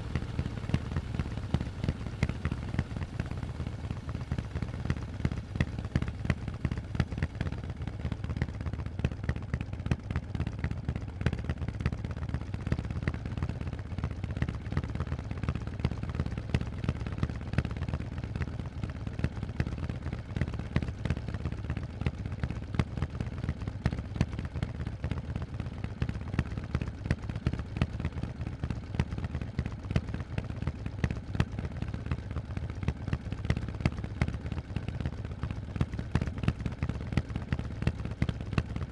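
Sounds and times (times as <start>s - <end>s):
exhaust cracks: 0.0s - 8.7s
motorcycle engine running loud: 0.0s - 38.9s.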